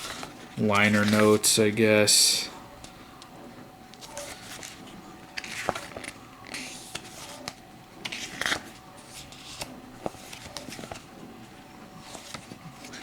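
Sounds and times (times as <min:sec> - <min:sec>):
page flips: 0:00.0 - 0:01.4, 0:03.9 - 0:11.2, 0:12.0 - 0:13.0
paper rustling: 0:00.0 - 0:01.6, 0:03.9 - 0:13.0.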